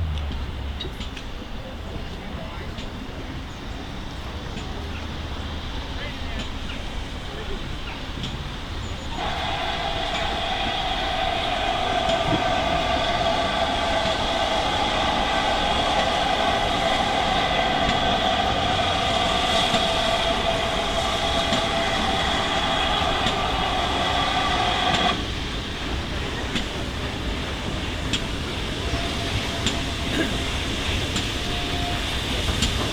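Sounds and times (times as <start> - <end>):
low rumble of train: 0.0 - 32.9
steam locomotive whistle: 9.0 - 32.9.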